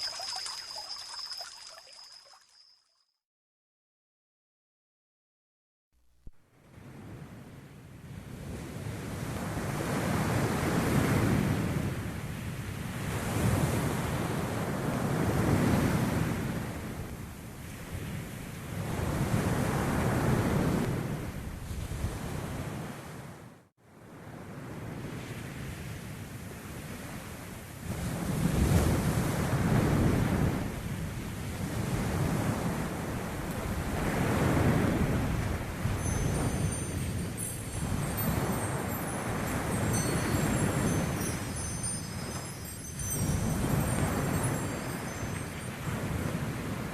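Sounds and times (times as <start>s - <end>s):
sea surf washing onto shore: 0.0s - 2.4s, 26.7s - 46.9s
wind buffeting microphone: 27.8s - 46.9s.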